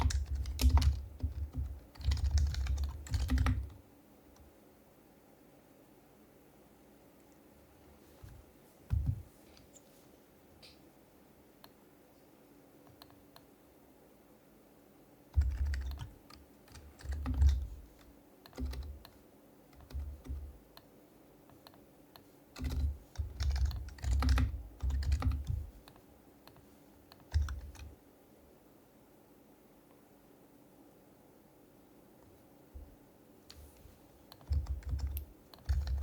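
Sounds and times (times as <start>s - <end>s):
soft muted keyboard typing: 0.0s - 4.5s, 8.2s - 9.8s, 15.3s - 20.9s, 21.5s - 28.0s, 32.2s - 36.0s.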